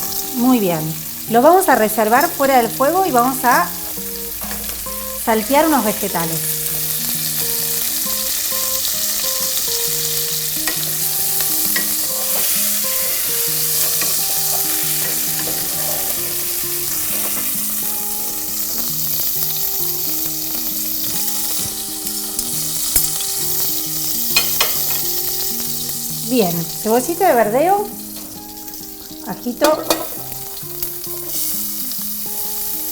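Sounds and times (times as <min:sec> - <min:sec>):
hot oil sizzling in a pot: 0:00.0 - 0:32.9.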